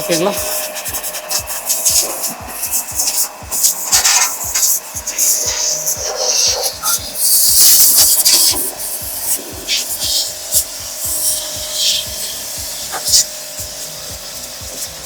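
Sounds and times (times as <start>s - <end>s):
faint motor hum: 0.0s - 15.0s
pressure washer water jet hissing: 0.0s - 15.0s.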